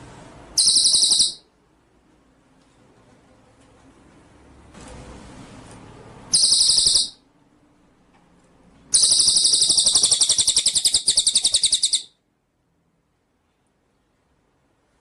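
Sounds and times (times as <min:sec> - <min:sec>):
songbird buzzy trill: 0:00.6 - 0:01.5, 0:06.3 - 0:07.2, 0:08.9 - 0:12.2.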